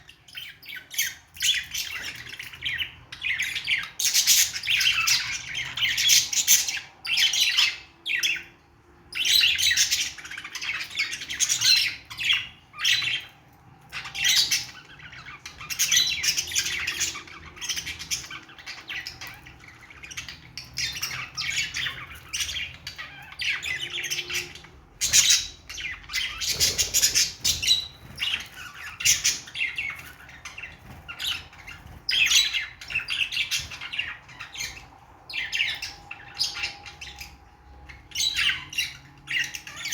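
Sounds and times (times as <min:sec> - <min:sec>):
budgerigars chattering: 0:09.2 - 0:37.4.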